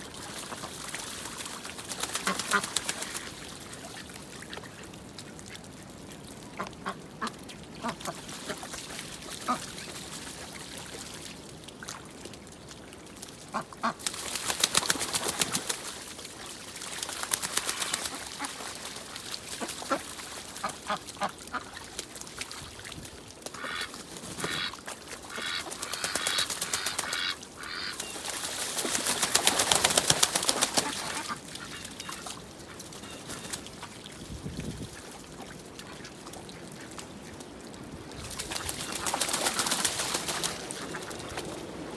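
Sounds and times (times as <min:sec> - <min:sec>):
ducks quacking: 0:02.1 - 0:03.2, 0:23.6 - 0:28.1, 0:30.4 - 0:33.6.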